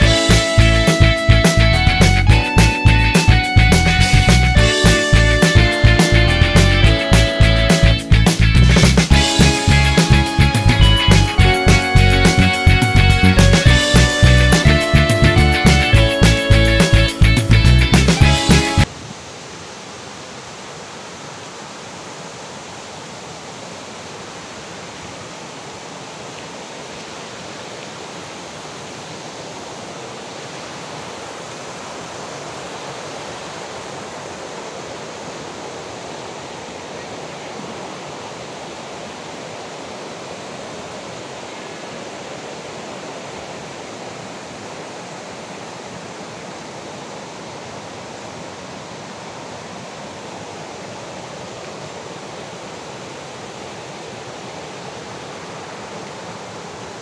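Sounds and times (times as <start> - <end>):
waterfall roaring: 0.0 - 2.2, 18.2 - 57.0.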